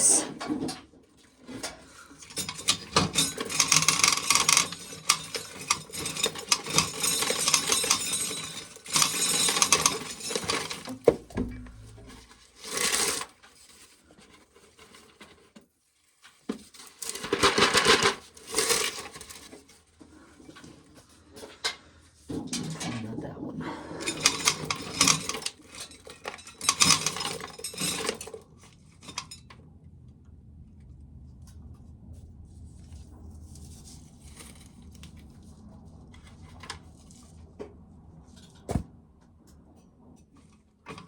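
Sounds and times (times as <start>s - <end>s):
corn kernels rattling into a pail: 17.0s - 19.6s.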